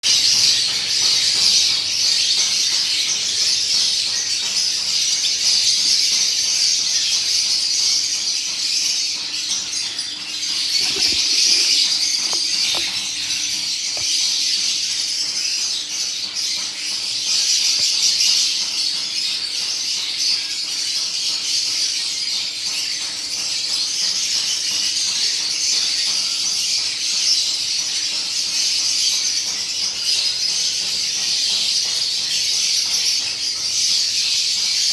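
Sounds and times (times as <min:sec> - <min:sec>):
lovebirds chirping and chattering: 0:00.1 - 0:24.0.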